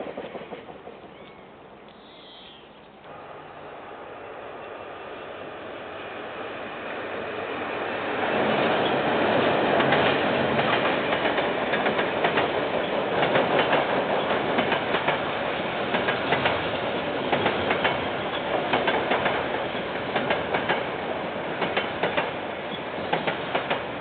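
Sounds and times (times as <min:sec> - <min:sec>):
train wagons rumbling: 0:00.0 - 0:01.8, 0:07.5 - 0:24.0
wheels clicking over rail joints: 0:08.7 - 0:21.0, 0:21.6 - 0:24.0.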